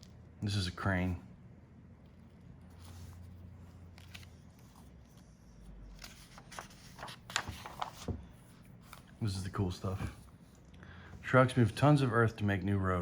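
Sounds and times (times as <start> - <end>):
book pages rustling: 2.0 - 12.0.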